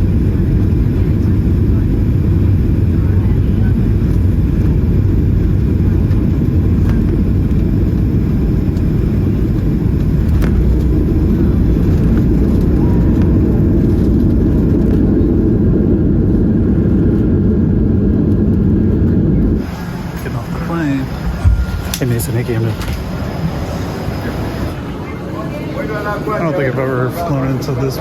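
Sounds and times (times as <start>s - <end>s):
airplane engines rumbling in cabin: 0.0s - 28.0s.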